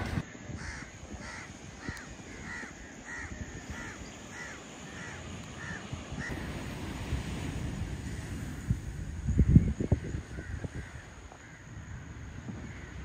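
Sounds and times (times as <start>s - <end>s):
bird calling: 0.0s - 6.4s.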